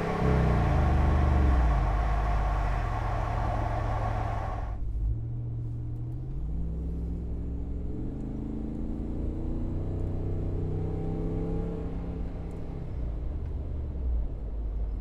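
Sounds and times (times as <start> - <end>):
engine exhaust note: 0.0 - 4.8
engine revving: 0.0 - 4.8
exhaust hiss: 0.0 - 4.8.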